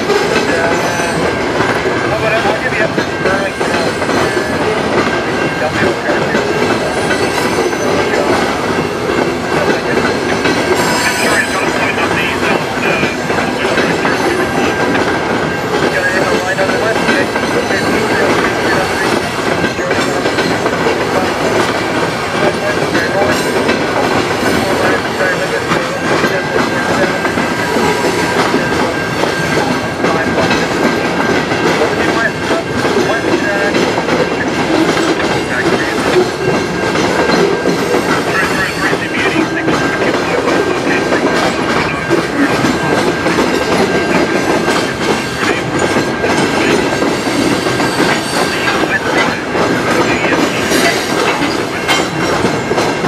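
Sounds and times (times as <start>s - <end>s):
freight train wheels clattering: 0.0s - 53.0s
high wheel squeal: 10.7s - 11.8s.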